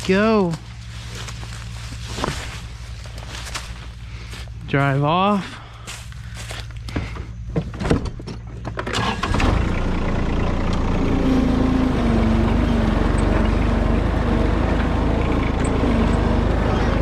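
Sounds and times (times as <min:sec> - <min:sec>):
tractor diesel engine revving: 0:08.8 - 0:17.0.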